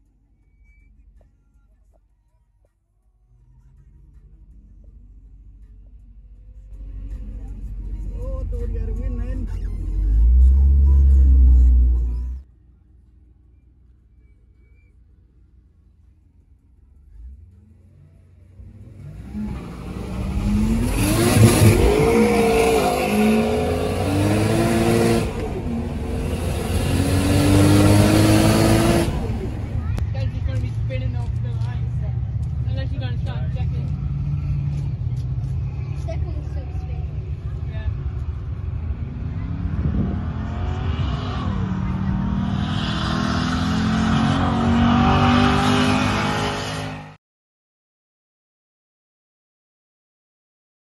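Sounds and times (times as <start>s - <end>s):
car engine accelerating hard: 6.6s - 12.4s, 17.0s - 31.8s, 32.4s - 47.2s.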